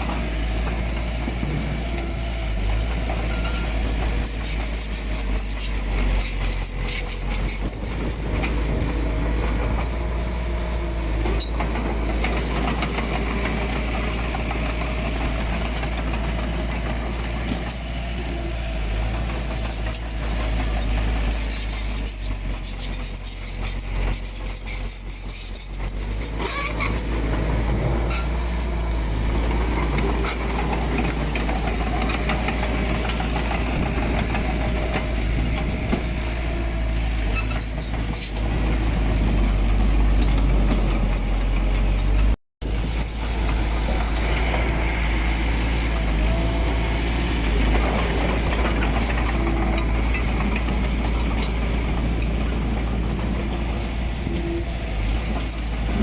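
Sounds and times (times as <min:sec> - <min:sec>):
heavy diesel machinery rumbling: 0:00.0 - 0:56.0
sharp metallic clicks and squeaks: 0:03.2 - 0:08.6, 0:19.4 - 0:28.4, 0:30.0 - 0:33.5, 0:37.2 - 0:44.6, 0:55.2 - 0:56.0.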